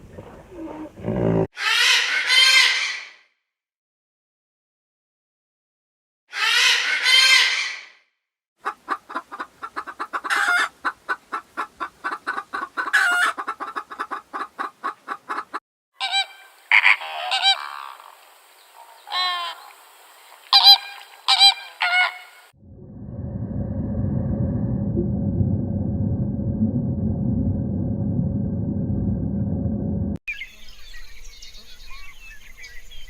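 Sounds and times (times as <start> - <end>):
faint steady hiss: 17.8 - 21.3
geese honking: 20.5 - 22.3.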